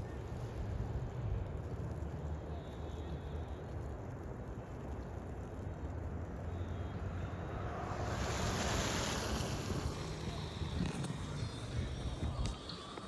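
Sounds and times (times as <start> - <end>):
wind rushing over microphone: 7.4 - 13.0.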